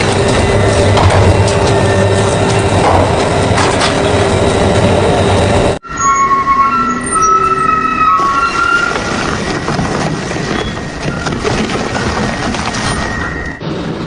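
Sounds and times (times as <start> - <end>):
metal-on-metal squealing: 3.4 - 11.6, 12.6 - 13.6.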